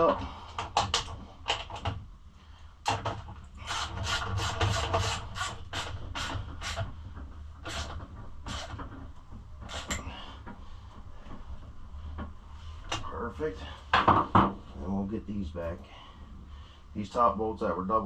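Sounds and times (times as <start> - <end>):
ratchet wrench strokes: 9.7 - 10.0.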